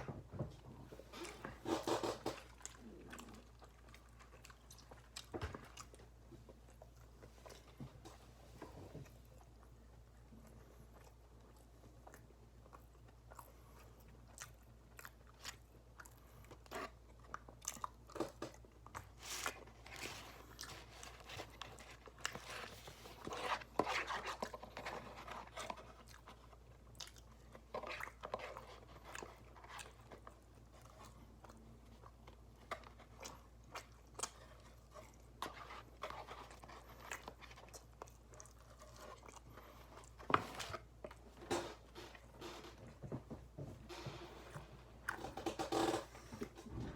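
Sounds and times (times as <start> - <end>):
person chewing and crunching food: 0.0 - 46.9.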